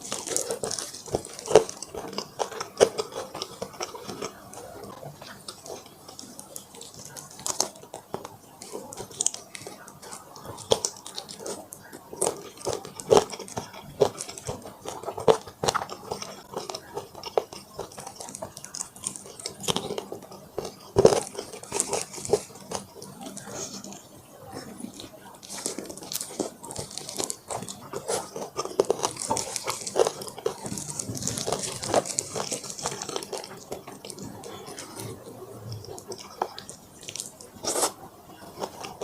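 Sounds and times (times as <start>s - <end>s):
person chewing food: 0.0s - 39.0s.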